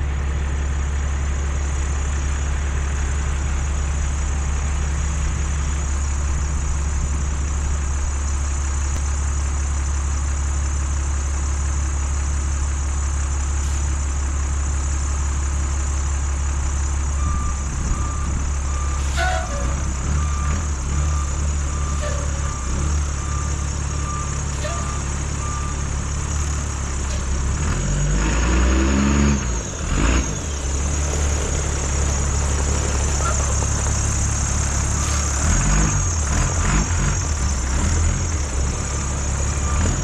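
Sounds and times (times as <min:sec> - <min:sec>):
heavy vehicle engine droning: 0:00.0 - 0:40.0
reversing alarm beeping: 0:16.6 - 0:28.2, 0:30.4 - 0:40.0.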